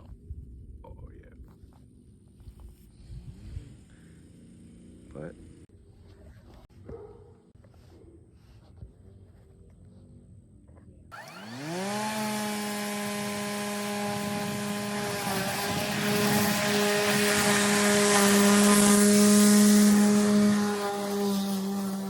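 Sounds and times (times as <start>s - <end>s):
electric lawnmower whine: 2.9s - 5.7s, 11.1s - 22.0s.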